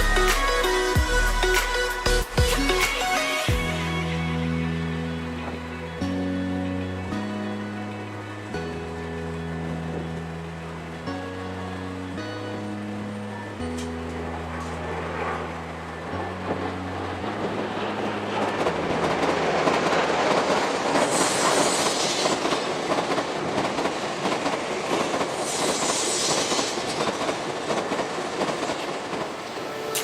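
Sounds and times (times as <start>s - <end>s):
train wheels rumbling on rail: 13.3s - 30.0s
brief high hisses: 21.1s - 22.4s, 25.4s - 26.9s.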